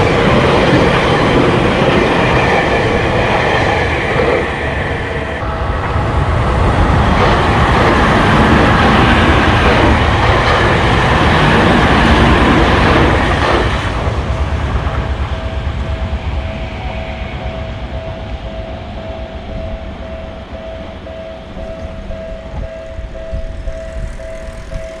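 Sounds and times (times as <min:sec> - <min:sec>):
electric train rumbling past: 0:00.0 - 0:25.0
level crossing warning bell: 0:00.0 - 0:25.0.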